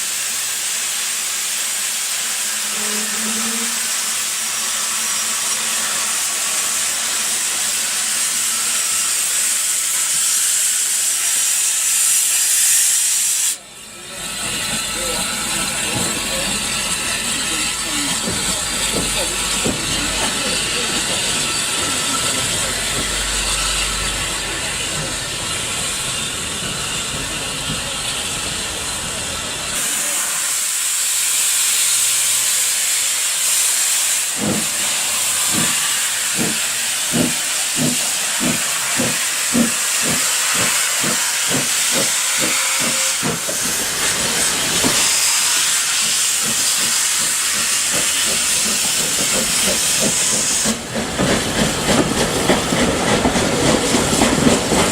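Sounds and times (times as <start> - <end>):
steam hissing: 0.0 - 54.9.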